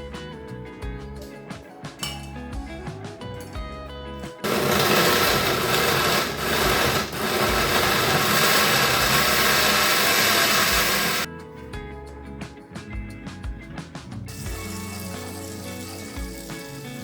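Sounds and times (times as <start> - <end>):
blender motor running: 4.4 - 11.3.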